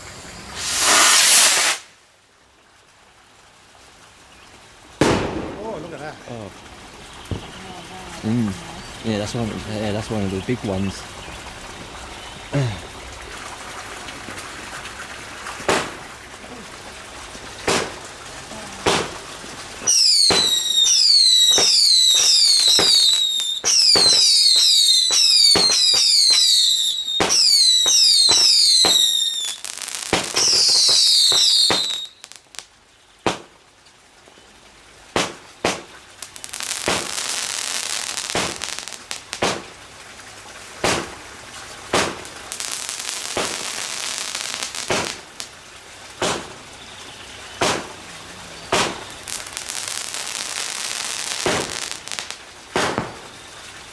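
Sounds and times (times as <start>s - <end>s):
firework bangs: 0.0s - 1.9s, 5.0s - 6.2s, 15.6s - 16.1s, 17.6s - 18.2s, 18.8s - 32.4s, 35.1s - 39.7s, 40.8s - 41.2s, 41.9s - 45.5s, 46.2s - 46.6s, 47.6s - 48.0s, 48.7s - 53.4s
firework whistles: 0.0s - 2.0s, 19.8s - 32.4s
steady hiss: 0.0s - 53.9s.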